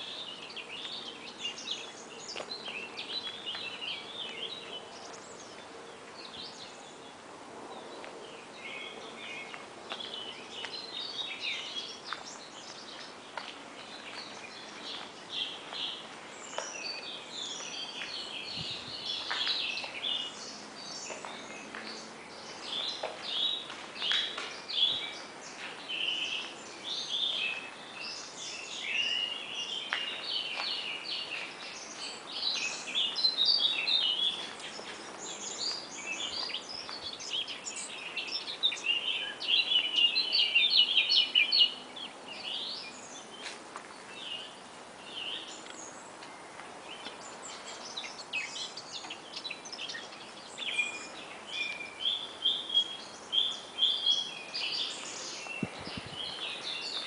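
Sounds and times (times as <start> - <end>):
songbirds chirping and trilling: 0.0 - 57.0.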